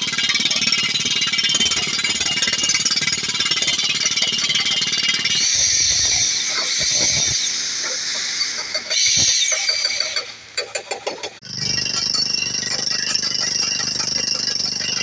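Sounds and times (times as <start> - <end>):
loud air hiss: 5.4 - 10.2
rock drill hammering: 8.6 - 15.0.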